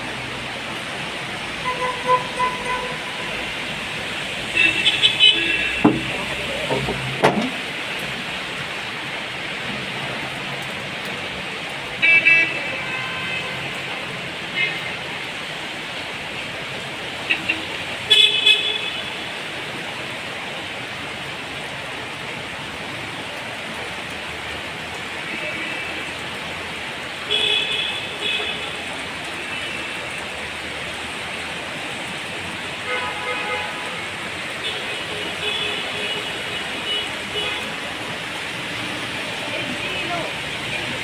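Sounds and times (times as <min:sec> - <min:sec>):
heavy rain hissing: 0:00.0 - 0:41.0
wet street traffic: 0:00.0 - 0:41.0
car horns honking: 0:01.6 - 0:03.2, 0:04.6 - 0:07.5.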